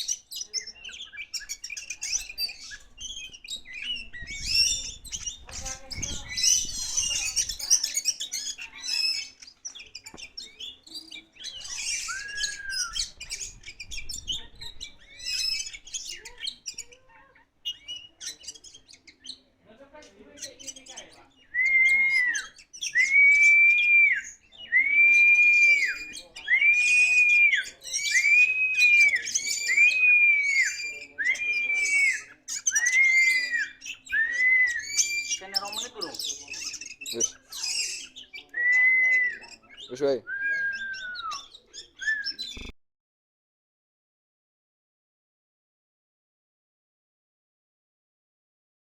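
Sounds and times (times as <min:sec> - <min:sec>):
bird singing chirps and trills: 0:00.0 - 0:42.7
bird whistling long notes: 0:11.7 - 0:13.4, 0:21.5 - 0:35.8, 0:37.6 - 0:39.6, 0:40.2 - 0:42.6.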